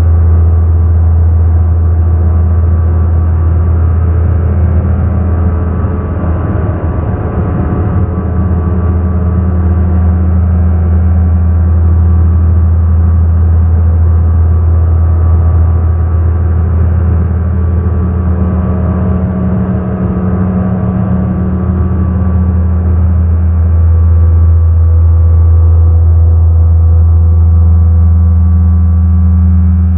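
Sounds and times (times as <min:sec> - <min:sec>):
ambient synthesizer drone music: 0:00.9 - 0:29.9.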